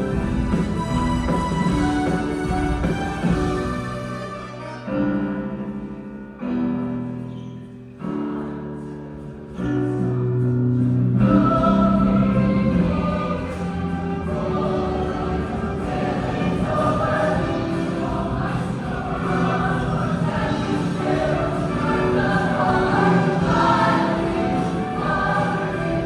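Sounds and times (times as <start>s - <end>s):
choir singing held chords: 11.1s - 26.0s.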